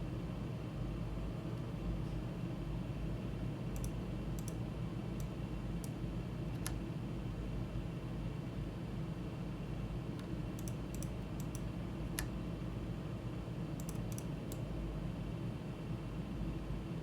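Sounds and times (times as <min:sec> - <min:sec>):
low background hum: 0:00.0 - 0:17.0
keyboard and mouse clicking: 0:03.8 - 0:04.6, 0:06.6 - 0:06.8, 0:10.2 - 0:12.4, 0:13.8 - 0:14.7.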